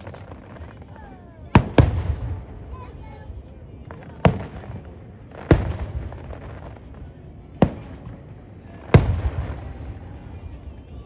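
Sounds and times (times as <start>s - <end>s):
fireworks banging: 0.0s - 10.8s.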